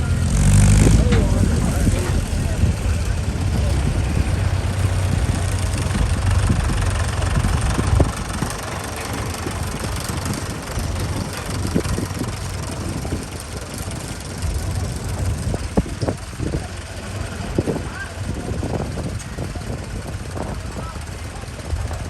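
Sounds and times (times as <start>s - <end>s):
engine idling hum: 0.0s - 22.0s
light engine knocks: 0.7s - 16.7s.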